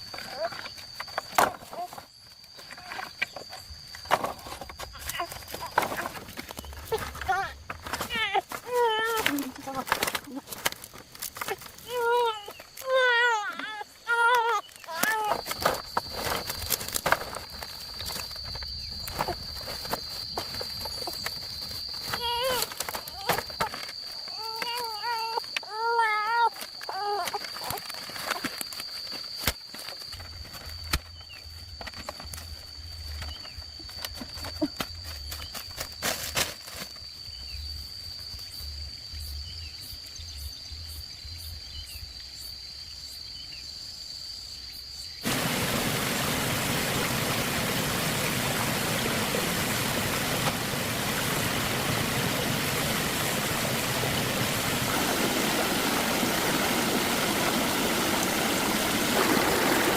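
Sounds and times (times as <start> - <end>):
flowing stream: 45.2 - 59.9.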